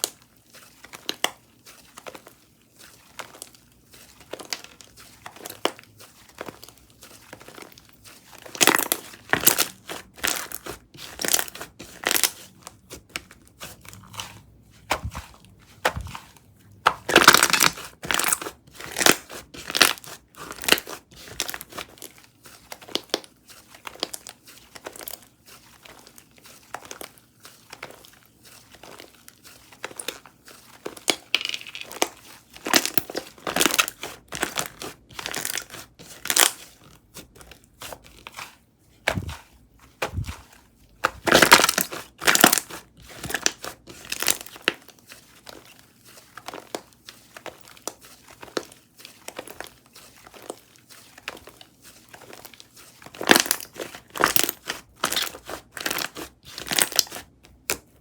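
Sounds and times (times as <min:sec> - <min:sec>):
slime crackling and popping: 0:16.9 - 0:22.0, 0:41.1 - 0:44.8, 0:53.1 - 0:57.8.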